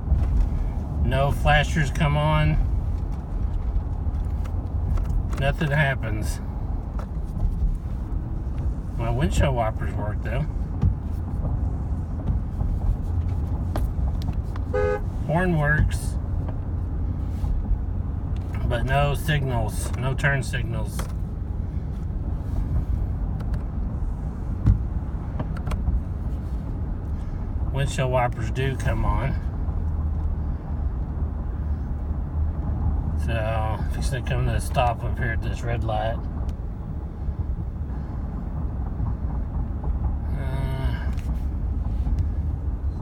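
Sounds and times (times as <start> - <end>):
road and engine rumble: 0.0 - 43.0
dull thump: 10.7 - 11.6, 24.5 - 26.0.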